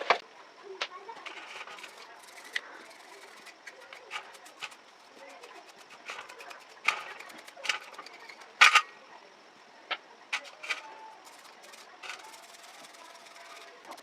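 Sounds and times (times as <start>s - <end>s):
clicks and knocks on metal parts: 3.4s - 8.9s, 9.9s - 12.4s.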